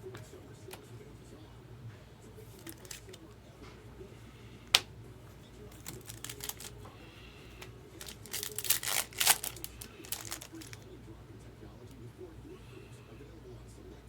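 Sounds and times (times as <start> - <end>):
cards clicking and rustling: 2.5 - 3.3, 5.7 - 6.9, 7.5 - 10.8.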